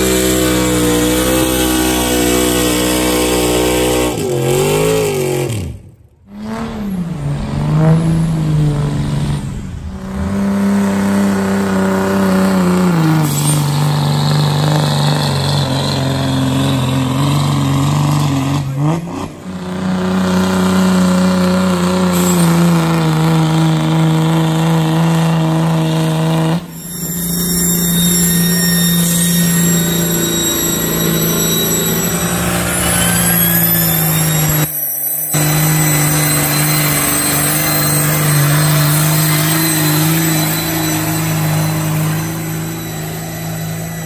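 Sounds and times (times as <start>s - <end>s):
truck engine revving high: 0.0s - 44.0s
thin rising whine: 26.7s - 44.0s.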